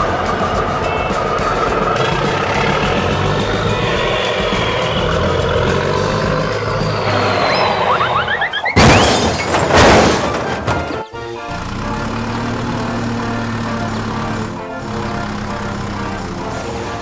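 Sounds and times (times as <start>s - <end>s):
rising chirps: 0.0s - 10.0s
background music: 0.0s - 17.0s
crashing shattering sound effects: 5.8s - 11.1s.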